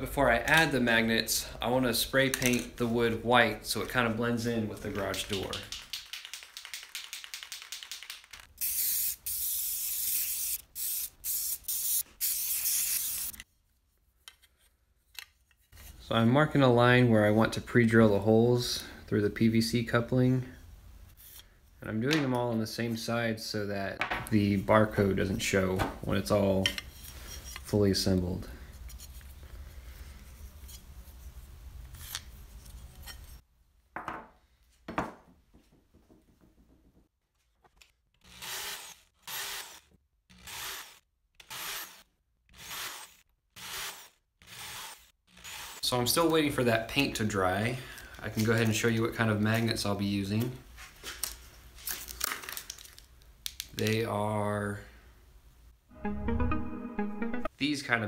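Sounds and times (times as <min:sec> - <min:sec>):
spray can rattling: 0:05.1 - 0:13.2
spray paint hissing: 0:08.6 - 0:13.4.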